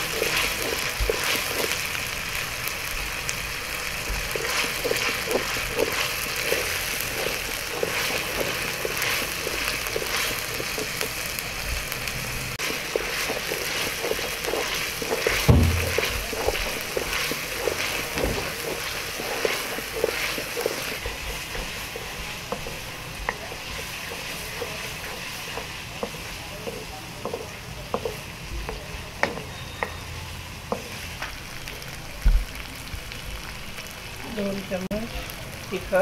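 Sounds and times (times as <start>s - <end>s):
onion frying in oil: 0.0s - 36.0s
wooden spoon scraping pan: 4.3s - 11.0s, 12.6s - 28.3s
low bump: 15.5s - 16.3s.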